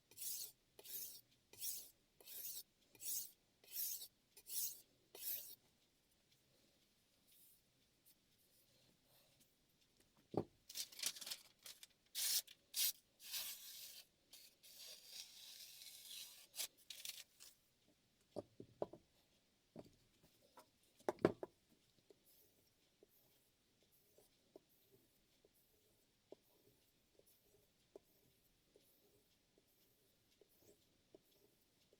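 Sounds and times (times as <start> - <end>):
knife scraping on whetstone: 0.2 - 5.6.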